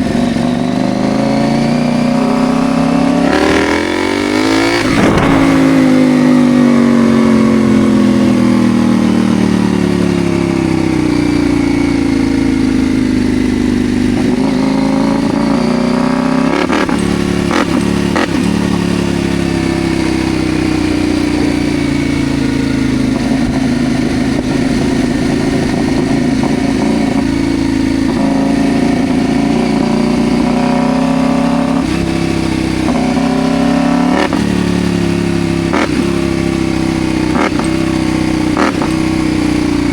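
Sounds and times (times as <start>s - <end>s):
motorcycle engine under way: 0.0s - 39.9s.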